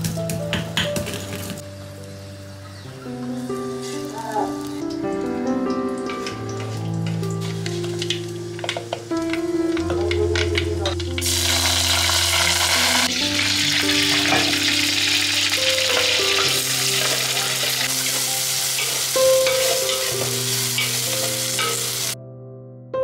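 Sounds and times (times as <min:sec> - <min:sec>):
soft background music: 0:00.0 - 0:23.0
hot oil sizzling: 0:03.0 - 0:22.2.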